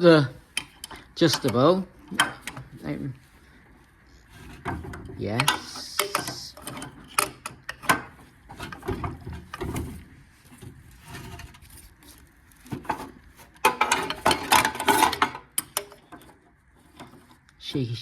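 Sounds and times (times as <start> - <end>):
spanner and engine metal clicks: 0.5 - 2.8, 5.4 - 8.1.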